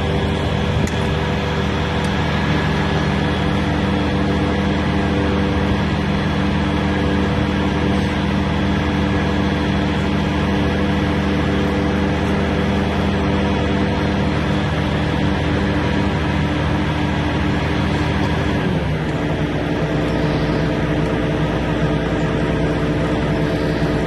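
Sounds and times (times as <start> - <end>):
engine humming steadily: 0.0 - 24.0.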